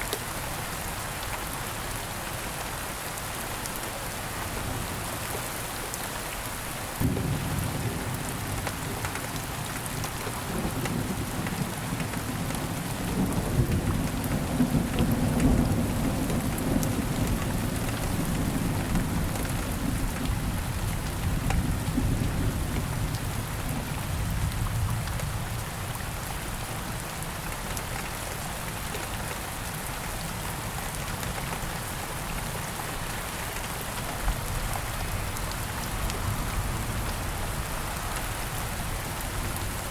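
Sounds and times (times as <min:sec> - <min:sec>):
steady rain falling: 0:00.0 - 0:39.9
thunder rumbling: 0:07.0 - 0:08.9.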